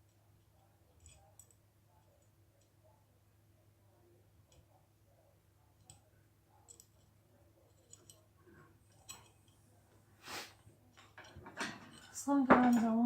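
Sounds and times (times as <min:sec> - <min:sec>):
small metal parts clicking: 0:07.7 - 0:08.3.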